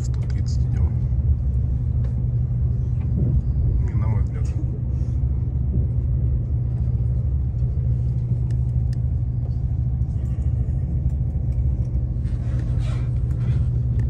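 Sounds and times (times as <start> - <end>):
train cabin rumble: 0.0 - 14.0.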